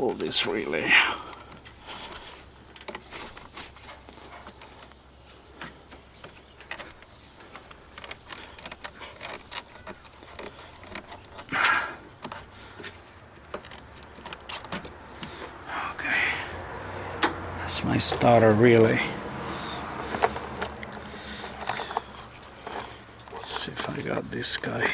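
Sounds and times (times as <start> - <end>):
hands clicking and rustling: 0.1 - 15.7, 19.2 - 24.9.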